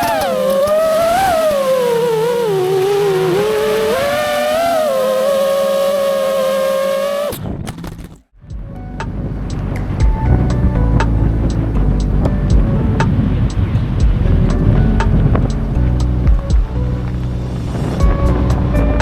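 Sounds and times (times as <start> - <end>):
quadcopter motors whining: 0.0 - 8.2.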